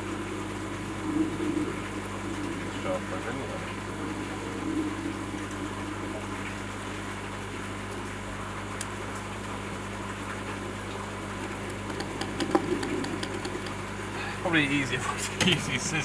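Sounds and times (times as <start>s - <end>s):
pond pump humming: 0.0s - 16.0s
water washing: 9.3s - 16.0s
faint clicks: 11.4s - 13.8s.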